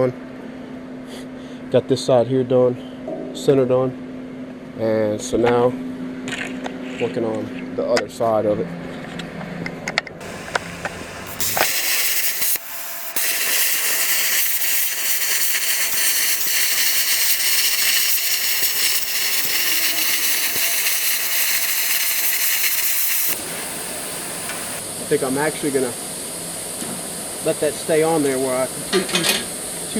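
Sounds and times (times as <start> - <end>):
metalworking tool hissing on steel: 10.2 - 24.8.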